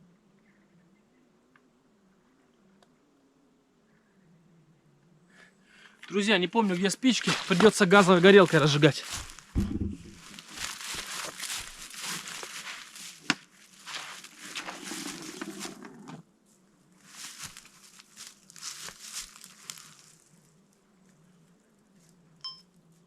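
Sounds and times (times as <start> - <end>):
gear rustling and crinkling: 7.2 - 16.2, 17.0 - 20.3.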